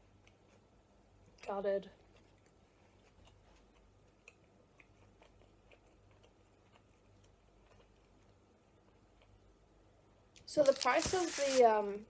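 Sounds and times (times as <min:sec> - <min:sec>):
chewing with mouth clicks: 0:00.2 - 0:09.4.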